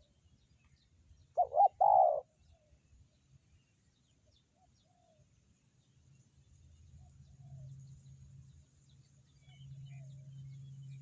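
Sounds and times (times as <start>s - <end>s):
faint coos of other doves: 1.3s - 2.8s
dove cooing: 1.4s - 2.3s.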